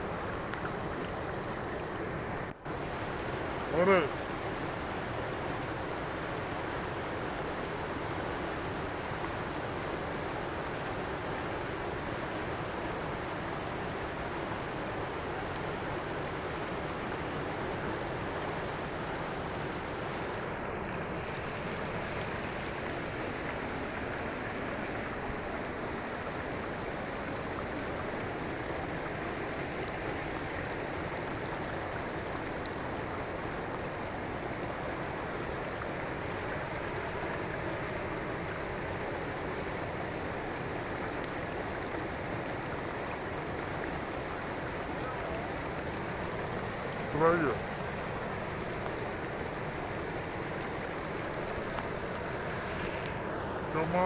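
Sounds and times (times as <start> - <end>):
falling water rushing: 0.0 - 54.0.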